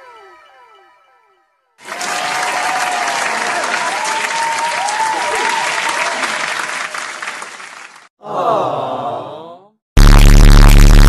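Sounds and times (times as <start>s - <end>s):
audience applause: 1.8s - 8.1s.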